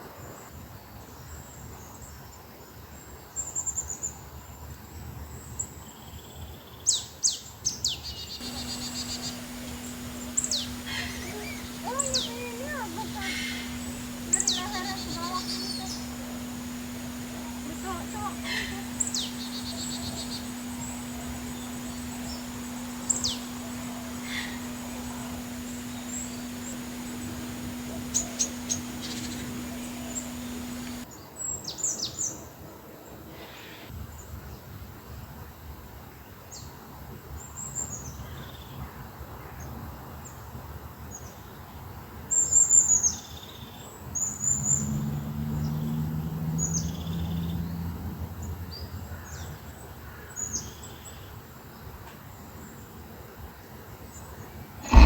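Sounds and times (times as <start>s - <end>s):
birds chirping and calling: 8.4s - 31.0s
steady low hum: 8.4s - 31.1s.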